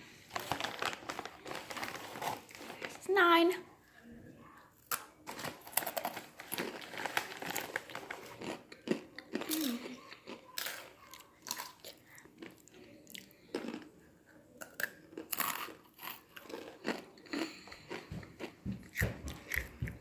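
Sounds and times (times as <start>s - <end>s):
person chewing crisp chips: 4.7s - 20.0s.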